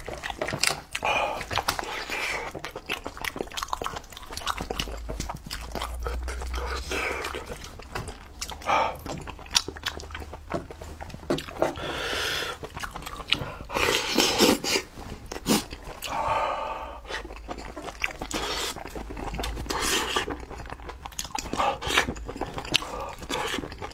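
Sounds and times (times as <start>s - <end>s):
wet chewing and lip smacks: 0.0s - 16.2s, 17.0s - 23.9s
breathy noises: 0.9s - 2.6s, 5.9s - 7.8s, 8.5s - 9.4s, 11.6s - 12.7s, 13.3s - 20.4s, 21.4s - 23.9s.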